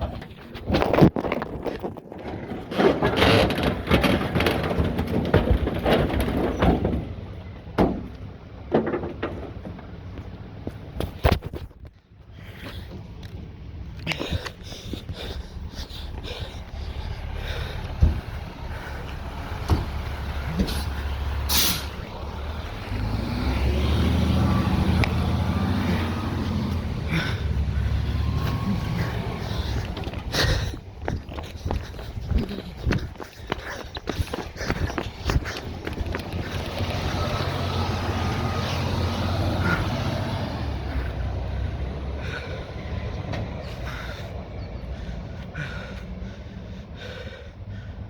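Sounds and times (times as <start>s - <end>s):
clattering load: 0.0s - 11.8s
garbage truck engine: 0.0s - 48.0s
air brake hiss: 21.5s - 22.0s.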